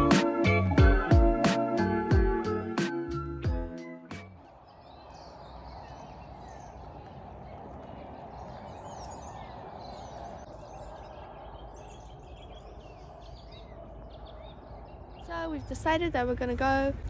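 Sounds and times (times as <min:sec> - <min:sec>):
wild birds chirping: 0:03.8 - 0:17.0.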